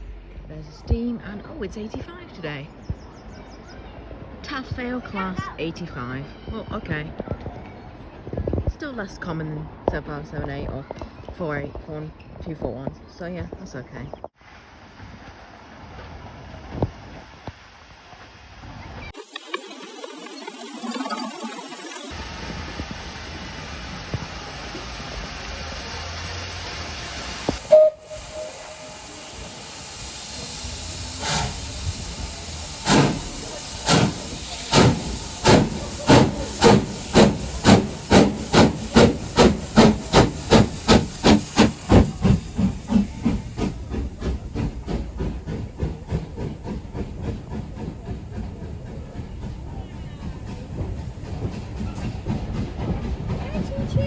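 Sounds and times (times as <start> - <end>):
steam locomotive hissing: 18.1 - 54.0
locomotive exhaust chuffs: 22.1 - 54.0
steam whistle toot: 27.5 - 29.8.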